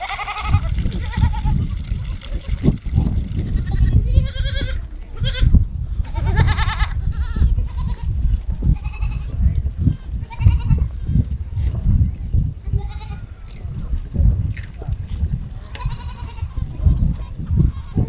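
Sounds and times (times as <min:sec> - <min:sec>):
goats bleating: 0:00.0 - 0:02.6, 0:03.3 - 0:09.3, 0:10.2 - 0:11.0, 0:12.6 - 0:13.4, 0:15.6 - 0:16.7.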